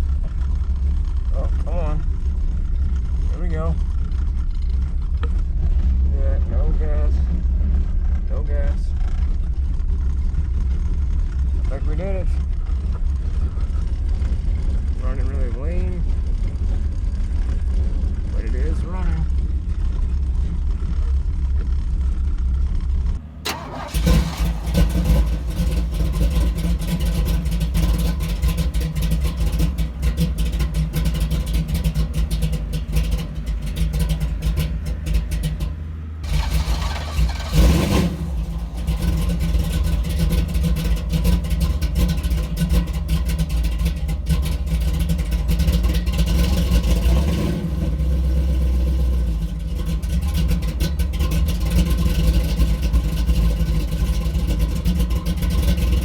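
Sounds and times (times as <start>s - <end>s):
car engine fast idle: 23.1s - 56.0s
engine revving: 23.2s - 56.0s.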